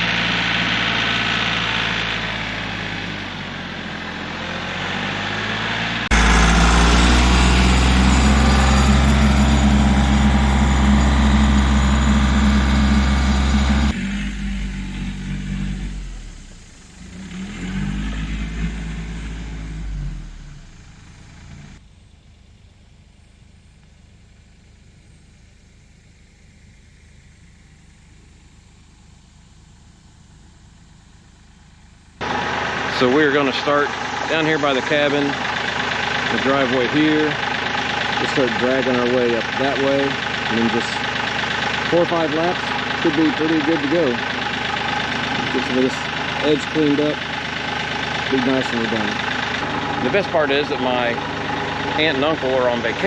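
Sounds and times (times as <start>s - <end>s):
tractor diesel engine running: 6.1s - 21.8s, 30.4s - 53.0s.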